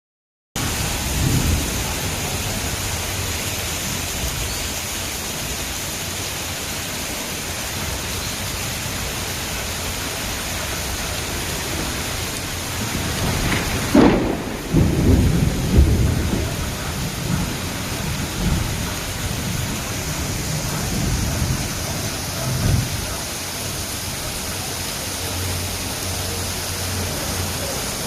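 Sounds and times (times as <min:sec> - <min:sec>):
low rumble of thunder: 0:00.6 - 0:04.5, 0:11.4 - 0:23.3
heavy rain pouring: 0:00.6 - 0:28.0.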